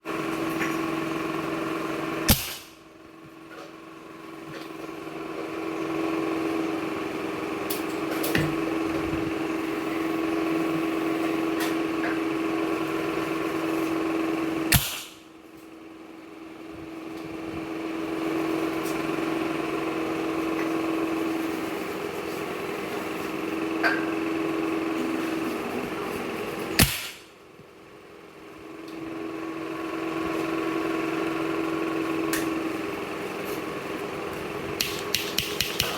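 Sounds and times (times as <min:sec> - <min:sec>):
steady motor-like hum: 0:00.0 - 0:35.9.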